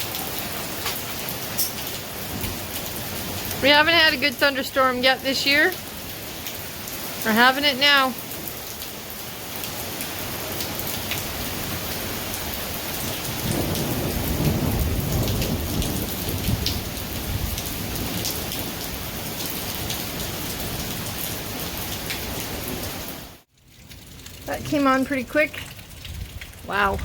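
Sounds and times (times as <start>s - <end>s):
heavy rain: 0.0s - 27.0s
raindrops ticking: 0.0s - 27.0s
thunder rumble: 2.0s - 5.5s, 11.4s - 23.0s, 23.7s - 27.0s.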